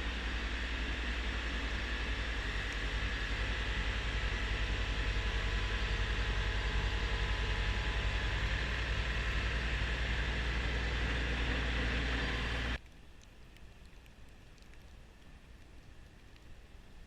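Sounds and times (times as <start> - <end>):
snowblower running: 0.0 - 12.8
tractor diesel engine running: 0.0 - 12.8
faint background noise: 7.9 - 17.0.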